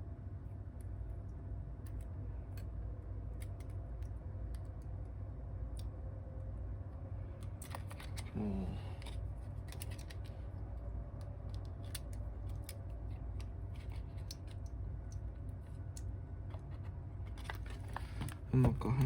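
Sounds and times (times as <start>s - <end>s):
steady low hum: 0.0s - 19.0s
small tools clicking on phone parts: 1.8s - 5.1s, 8.9s - 10.4s, 11.1s - 18.4s.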